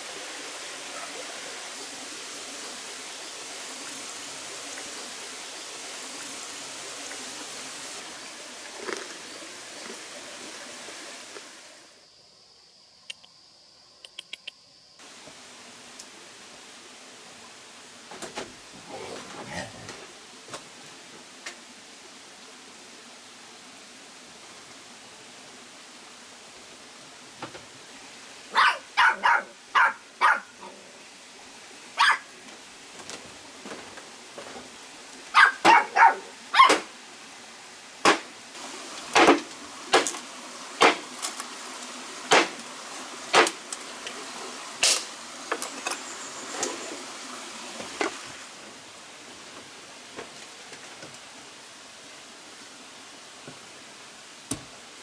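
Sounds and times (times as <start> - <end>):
dog barking: 28.5 - 30.8, 32.0 - 32.3, 35.3 - 36.9.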